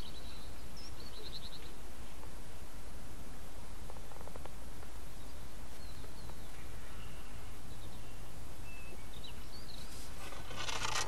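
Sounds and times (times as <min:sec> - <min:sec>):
faint bird chirps: 0:00.0 - 0:02.7, 0:05.0 - 0:11.0.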